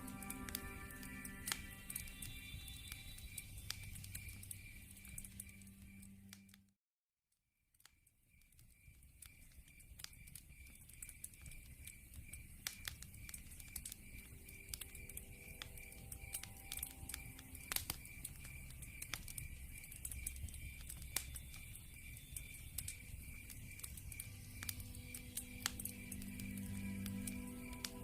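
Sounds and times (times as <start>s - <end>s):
pulsing high chirp: 0.0s - 6.2s, 14.1s - 28.0s
wood fire crackling: 0.0s - 6.5s, 8.3s - 28.0s
faint sustained musical tones: 0.0s - 6.7s, 10.7s - 28.0s.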